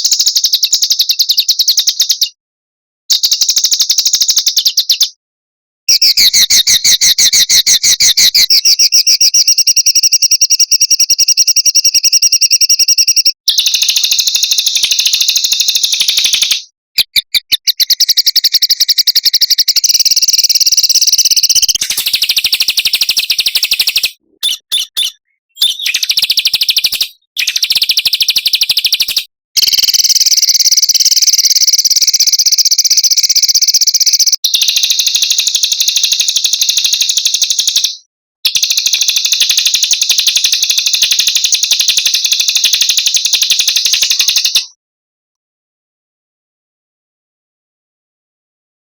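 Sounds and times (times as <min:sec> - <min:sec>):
songbird trilling: 0:05.9 - 0:29.2, 0:42.8 - 0:44.6.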